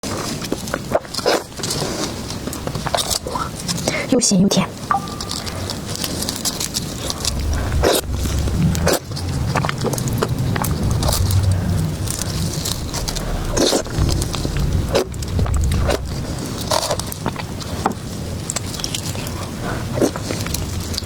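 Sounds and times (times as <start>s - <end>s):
low rumble: 4.9s - 19.0s.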